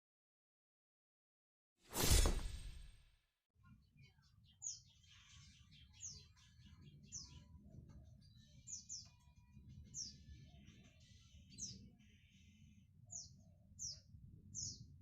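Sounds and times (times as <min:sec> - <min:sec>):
loud sudden hit: 0:02.0 - 0:03.0
canary chirping: 0:04.0 - 0:14.0.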